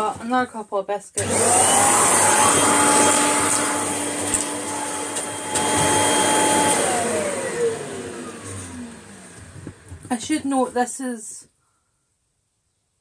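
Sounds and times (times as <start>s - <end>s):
vacuum cleaner running: 1.2s - 10.7s
motor whine spinning down: 1.3s - 10.0s.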